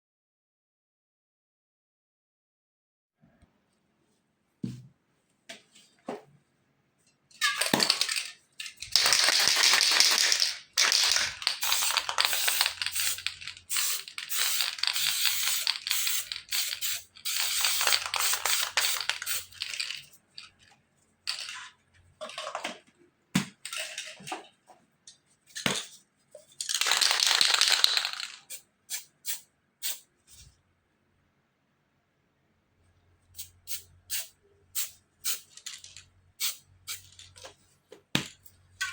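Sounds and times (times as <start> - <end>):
spray paint cans hissing: 8.9 - 20.1, 26.7 - 30.1, 33.4 - 37.5.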